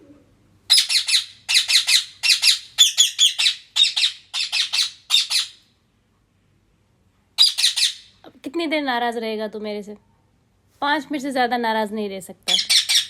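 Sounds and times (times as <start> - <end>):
parrot squawking: 0.7 - 5.7, 7.4 - 8.2, 12.5 - 13.0.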